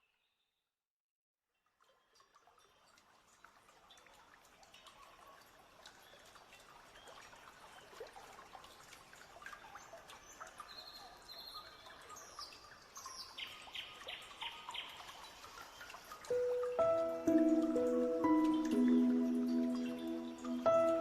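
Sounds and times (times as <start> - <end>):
faint trickling water: 1.5 - 21.0
small birds chirping: 9.6 - 21.0.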